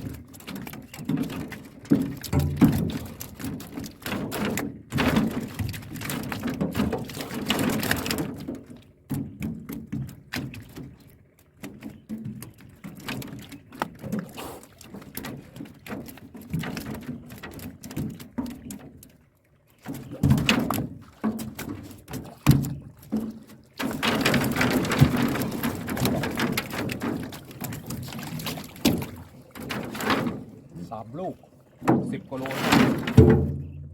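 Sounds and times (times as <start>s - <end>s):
fish trap knocking in boat: 0.0s - 11.0s, 20.0s - 33.9s
fish flapping: 0.0s - 18.8s, 19.8s - 30.8s, 31.8s - 33.6s
water splashing: 0.0s - 33.9s.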